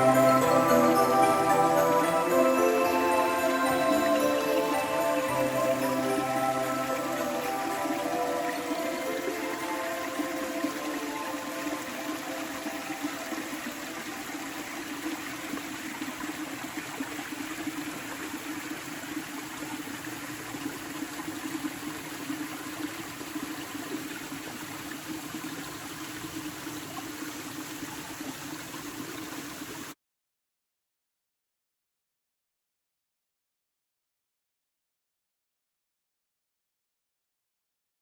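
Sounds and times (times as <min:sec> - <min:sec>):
waterfall running: 0:00.0 - 0:29.9.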